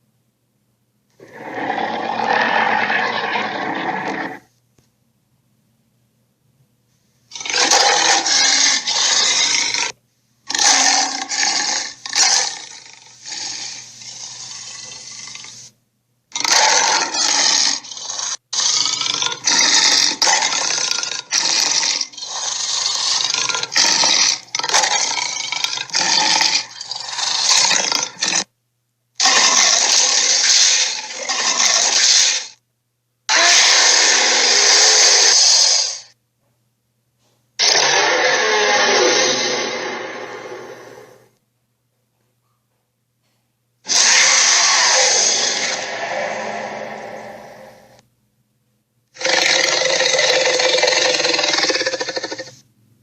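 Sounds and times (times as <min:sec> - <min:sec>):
dinosaur roars and growls: 0:01.2 - 0:04.5, 0:07.3 - 0:15.6, 0:16.4 - 0:28.5, 0:33.3 - 0:36.1, 0:37.6 - 0:41.3, 0:43.9 - 0:48.0, 0:49.2 - 0:52.5.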